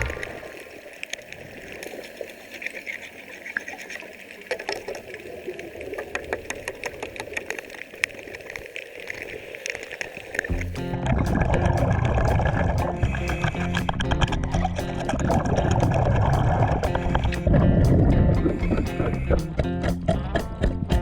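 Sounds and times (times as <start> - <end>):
underwater scraping hiss: 0.0 - 1.1, 12.3 - 14.0.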